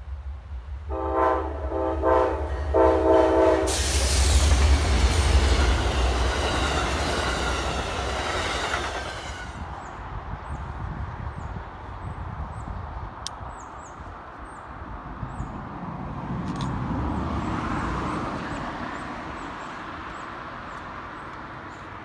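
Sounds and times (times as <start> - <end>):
train horn blasts: 0.9 - 4.4
train wheels rushing on rail: 0.9 - 10.9.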